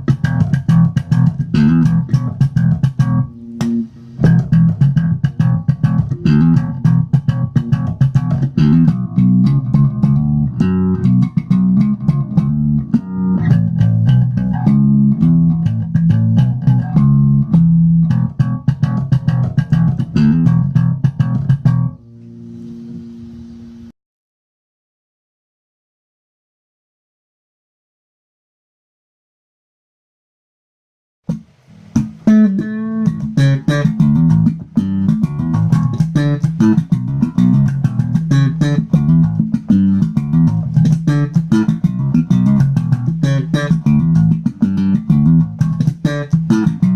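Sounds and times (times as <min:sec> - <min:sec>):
electric bass guitar plucked notes: 0:00.0 - 0:23.1, 0:32.0 - 0:46.9.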